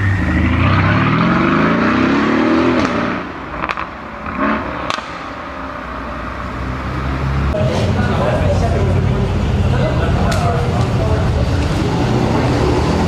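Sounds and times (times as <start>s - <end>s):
exhaust cracks: 0.0s - 5.4s
car engine revving: 0.0s - 13.0s.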